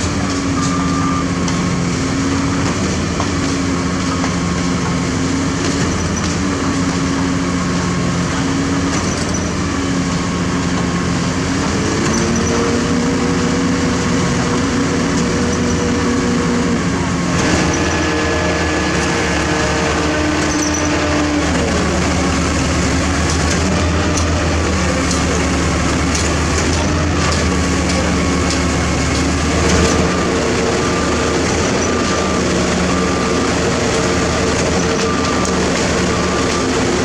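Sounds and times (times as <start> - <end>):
diesel machinery engines running: 0.0 - 37.0
faint short beeps: 0.5 - 1.4.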